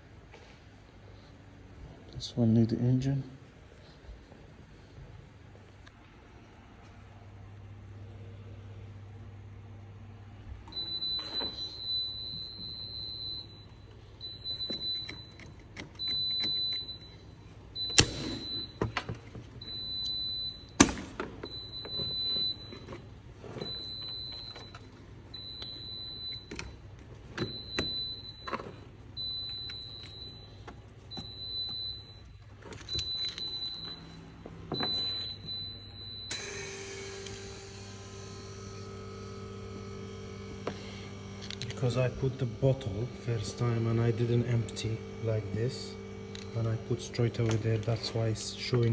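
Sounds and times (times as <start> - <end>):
steady motor hum: 3.5 - 48.9.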